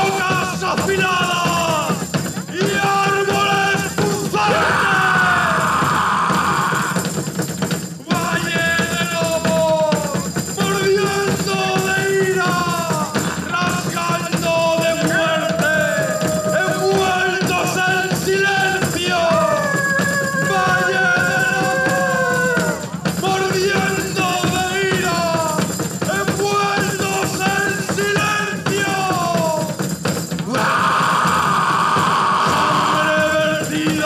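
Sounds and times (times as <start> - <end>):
live band music: 6.9 - 29.8.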